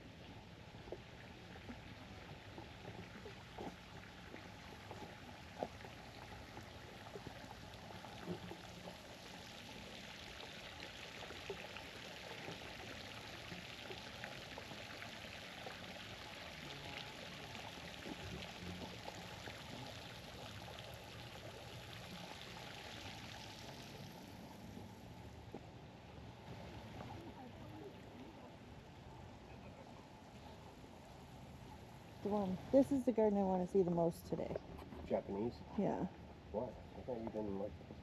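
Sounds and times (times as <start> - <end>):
running water splashing: 0.6 - 25.1.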